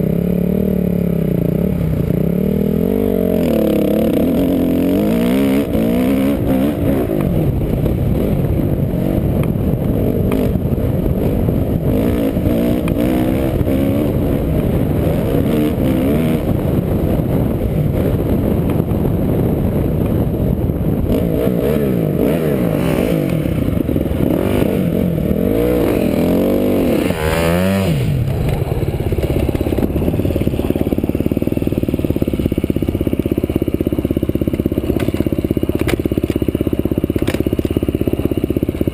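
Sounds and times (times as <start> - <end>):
off-road vehicle engine revving: 0.0 - 16.8, 21.0 - 28.6.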